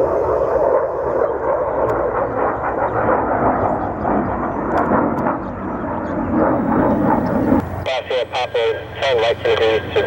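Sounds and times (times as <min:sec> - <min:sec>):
aircraft engines: 0:00.0 - 0:10.0.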